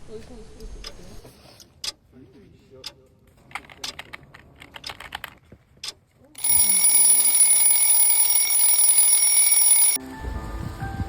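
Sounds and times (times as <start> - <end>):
loud alarm: 6.4 - 10.0.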